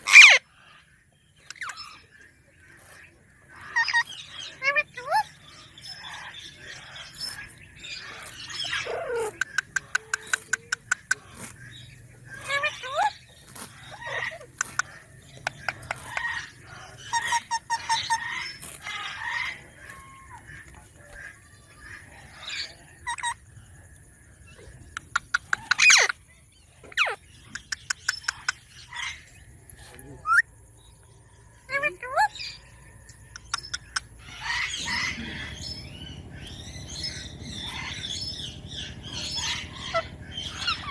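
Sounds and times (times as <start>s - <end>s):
parakeet chirping: 0.0s - 0.4s, 1.4s - 2.0s, 2.6s - 20.2s, 25.0s - 26.2s, 26.8s - 29.3s, 33.4s - 40.9s
parrot squawking: 0.0s - 0.4s, 3.5s - 11.5s, 12.3s - 20.2s, 25.2s - 26.2s, 26.9s - 29.2s, 34.2s - 40.9s
sharp clicks: 9.3s - 11.7s, 27.5s - 28.8s, 33.1s - 34.1s.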